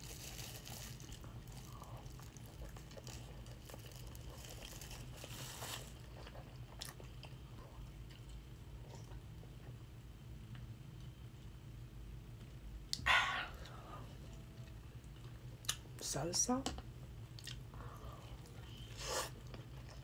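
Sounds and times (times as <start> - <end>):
wet chewing: 1.0 - 9.2.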